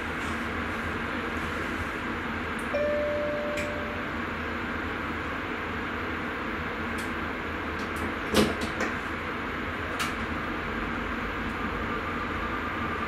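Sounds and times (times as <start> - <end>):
train cab rumble: 0.0 - 13.0
faint steady whine: 2.5 - 6.8.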